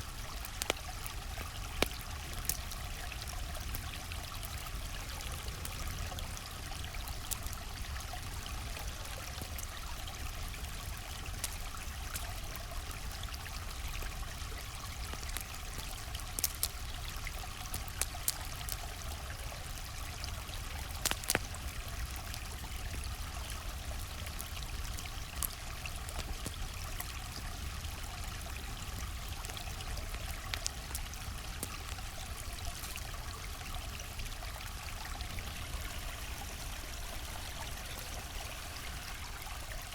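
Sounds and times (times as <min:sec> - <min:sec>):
campfire pops and crackles: 0:00.0 - 0:39.9
river water flowing: 0:28.2 - 0:39.9.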